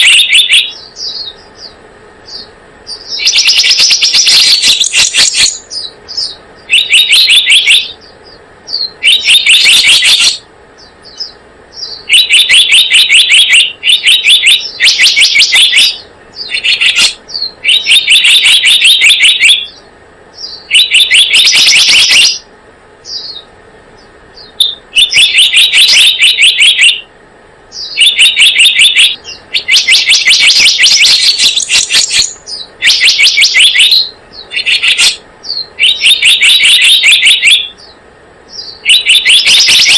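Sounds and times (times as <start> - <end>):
recorded bird song: 0.0 - 39.9.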